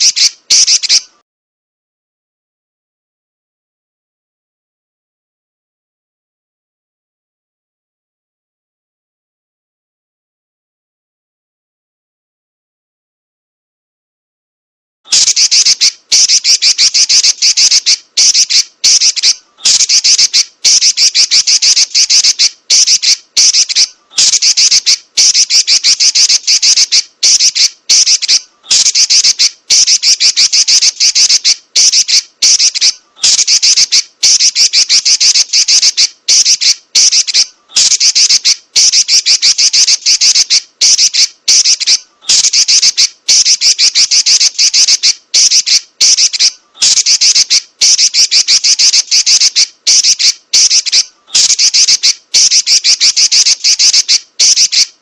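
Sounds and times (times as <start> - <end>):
bird rattling call: 0.0 - 1.1, 15.1 - 54.9.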